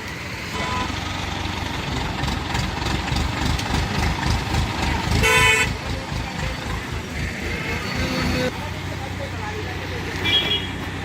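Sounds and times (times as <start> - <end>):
vehicle engine rumble: 0.0 - 11.0
vehicle horn honk: 5.2 - 5.7, 10.2 - 10.8.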